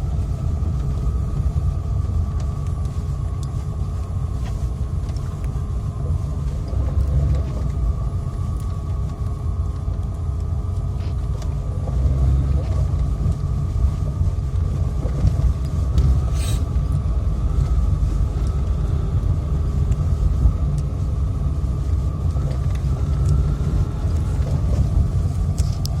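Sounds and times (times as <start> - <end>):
motor vehicle rumbling: 0.0 - 26.0
short hiss: 16.3 - 16.7.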